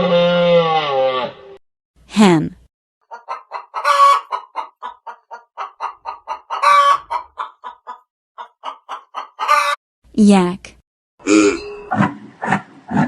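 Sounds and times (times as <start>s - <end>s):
hen cackling: 3.0s - 9.8s.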